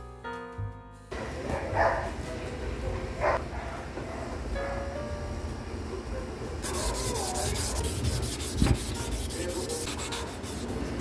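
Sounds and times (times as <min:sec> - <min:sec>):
hand sanding strokes: 0:06.6 - 0:11.0.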